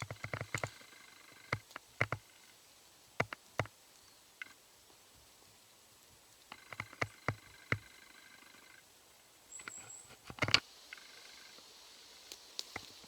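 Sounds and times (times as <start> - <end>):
twigs cracking underfoot: 0.0 - 2.4, 12.2 - 13.0.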